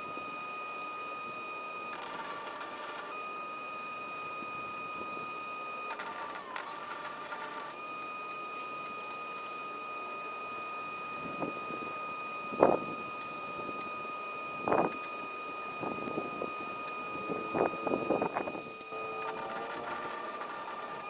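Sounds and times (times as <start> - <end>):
steady high whine: 0.0 - 7.9, 11.1 - 21.0
welder arc crackling: 2.0 - 3.1, 5.9 - 7.8, 19.2 - 21.0.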